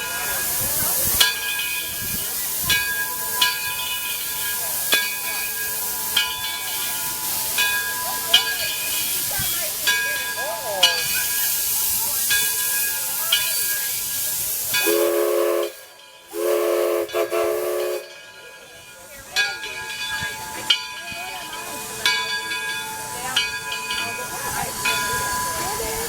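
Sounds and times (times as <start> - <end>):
steam hissing: 0.0 - 26.0
steam whistle chord blasts: 14.8 - 18.2.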